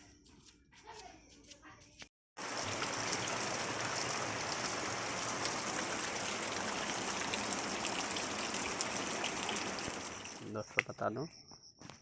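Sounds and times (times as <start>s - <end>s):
rain hissing: 2.4s - 10.5s
raindrops ticking: 2.4s - 10.9s.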